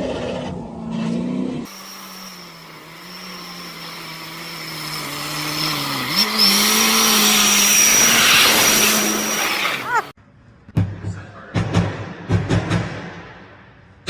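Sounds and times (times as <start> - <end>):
car engine humming: 1.6 - 10.1.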